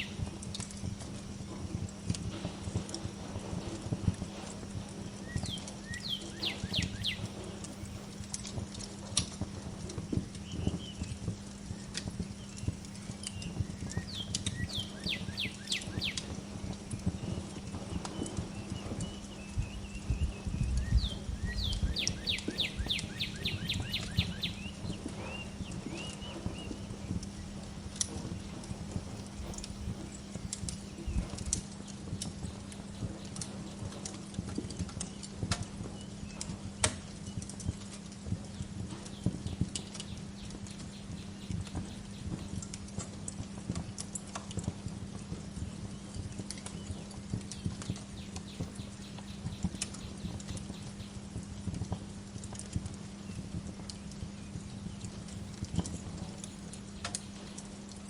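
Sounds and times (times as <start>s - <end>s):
fireplace crackling: 0.0s - 58.0s
low steady hum: 0.0s - 58.0s
faint bird chirps: 5.0s - 8.0s, 10.1s - 16.4s, 17.0s - 31.6s
bird whistling descending notes: 20.2s - 27.2s.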